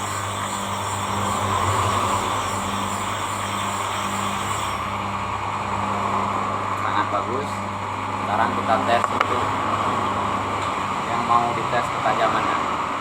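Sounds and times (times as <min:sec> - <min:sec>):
disc grinding against blade: 0:00.0 - 0:05.2
sharpening machine humming: 0:00.0 - 0:06.8.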